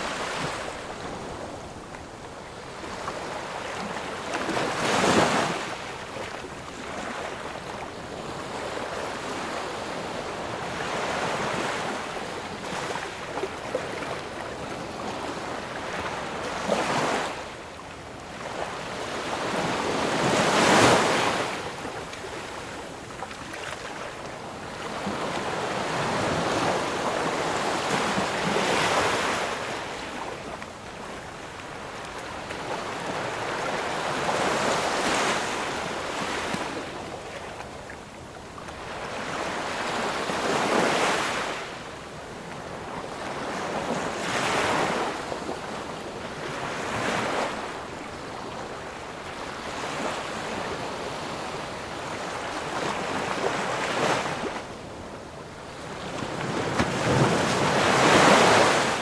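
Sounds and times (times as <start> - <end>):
ocean waves breaking: 55.6 - 59.0.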